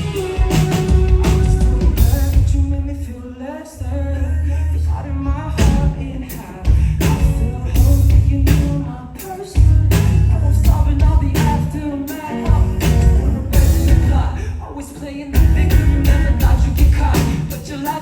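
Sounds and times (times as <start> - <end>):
drum hits: 0.0 - 2.6, 12.5 - 14.3, 15.4 - 17.7
bass: 0.0 - 18.0
guitar: 0.0 - 18.0
person singing: 0.0 - 18.0.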